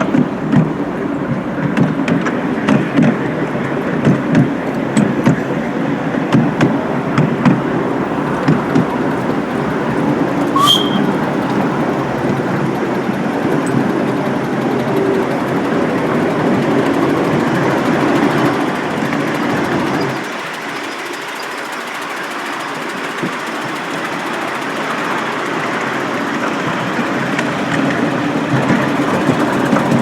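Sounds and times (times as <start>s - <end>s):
miniature train running on track: 0.0s - 30.0s
train wheels clacking: 0.0s - 30.0s
high squeak: 10.4s - 11.7s.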